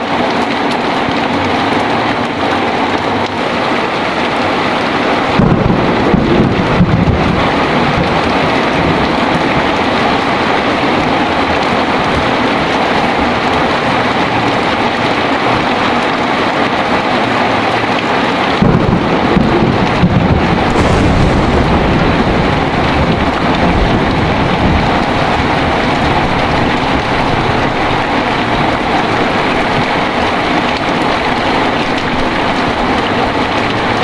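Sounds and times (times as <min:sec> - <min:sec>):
heavy rain falling: 0:00.0 - 0:34.0
thunder rumbling: 0:18.4 - 0:34.0.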